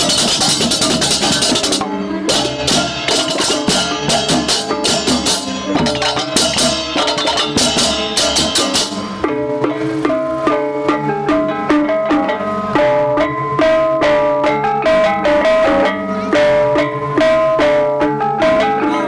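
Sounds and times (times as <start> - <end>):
hand cymbals clashing: 0.0 - 9.4
drums: 0.0 - 19.0.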